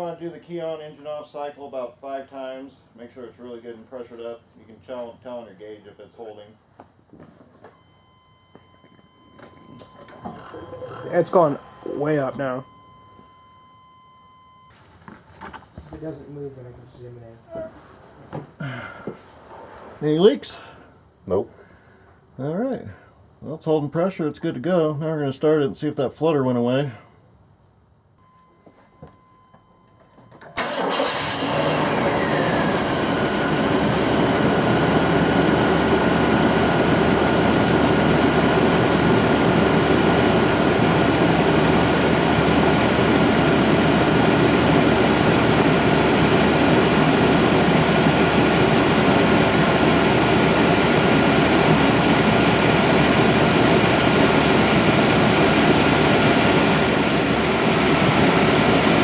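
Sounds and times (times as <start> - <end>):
car engine starting and idling: 7.8 - 14.7, 29.0 - 59.0
high whine: 7.8 - 14.7.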